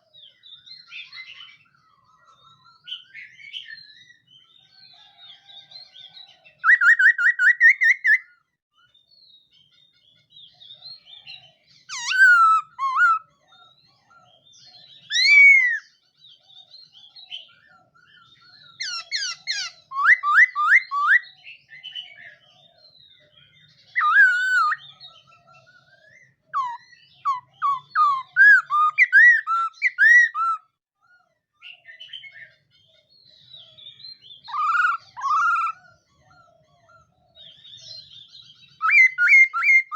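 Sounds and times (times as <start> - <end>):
bird singing whistled phrases: 6.6 - 8.3, 11.9 - 13.3, 14.7 - 16.0, 18.2 - 22.3, 23.9 - 25.0, 25.9 - 30.7, 33.5 - 35.8, 37.4 - 39.9.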